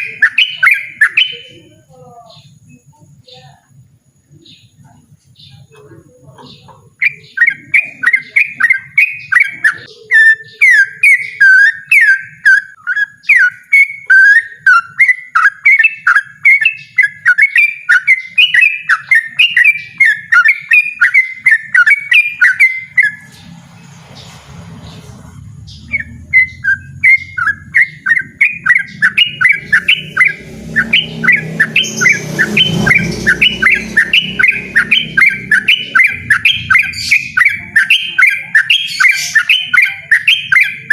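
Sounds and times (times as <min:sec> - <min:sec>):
bird fast repeated chirping: 0:00.0 - 0:03.5, 0:06.4 - 0:40.9
low rumbling noise: 0:22.8 - 0:37.8.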